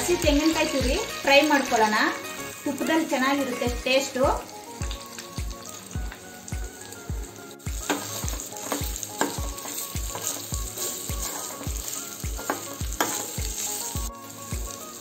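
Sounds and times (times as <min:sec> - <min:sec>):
coconut sizzling in a pan: 0:00.0 - 0:15.0
steel spoon scraping a pan: 0:07.8 - 0:14.0.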